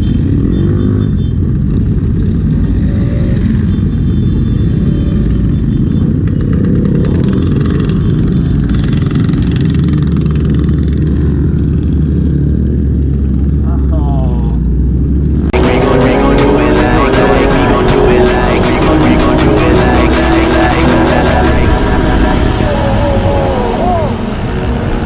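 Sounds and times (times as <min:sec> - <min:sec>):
motorcycle engine rumbling: 0:00.0 - 0:25.0.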